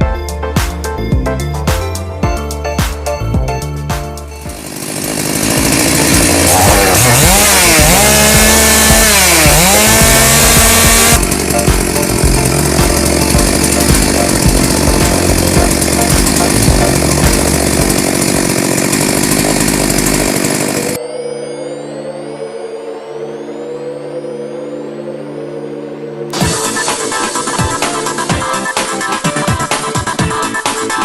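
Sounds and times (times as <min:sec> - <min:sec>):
chainsaw running at high revs: 0:04.3 - 0:21.0, 0:26.3 - 0:30.2.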